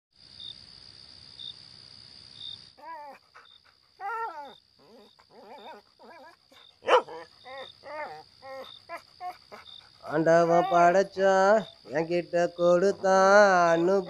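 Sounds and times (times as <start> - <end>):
crickets chirring: 0.2 - 14.0
dog whining and yelping: 2.8 - 10.9.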